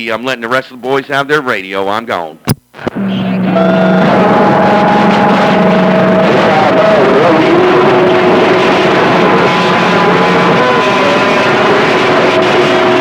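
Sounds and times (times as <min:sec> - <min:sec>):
radio static hiss: 0:02.7 - 0:03.5, 0:05.2 - 0:13.0.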